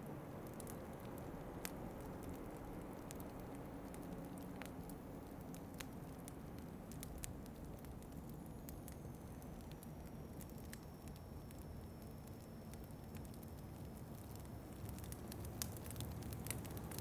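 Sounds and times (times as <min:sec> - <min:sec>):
low rush of wind: 0:00.0 - 0:09.2
wood fire crackling and popping: 0:00.0 - 0:17.0.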